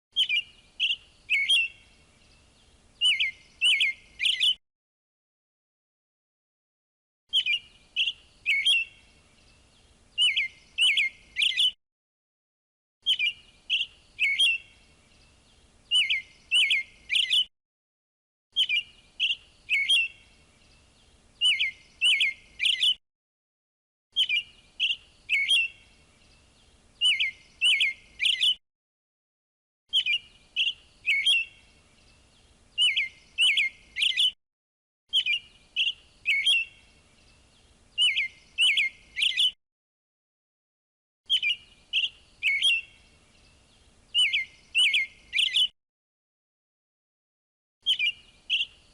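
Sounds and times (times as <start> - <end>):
robin chirping and trilling: 0.2 - 4.6, 7.3 - 11.8, 13.0 - 17.5, 18.6 - 23.0, 24.2 - 28.6, 29.9 - 34.4, 35.1 - 39.6, 41.3 - 45.7, 47.8 - 48.9.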